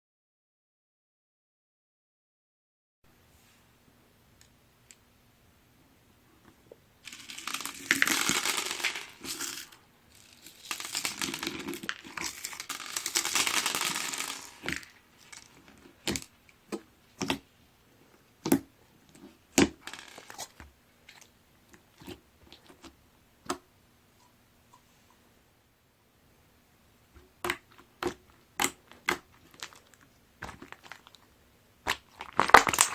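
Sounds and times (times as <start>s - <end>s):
crunchy slime crackling: 7.0s - 16.4s, 19.6s - 21.3s, 27.4s - 32.9s
sharp pops and clicks: 27.2s - 29.8s.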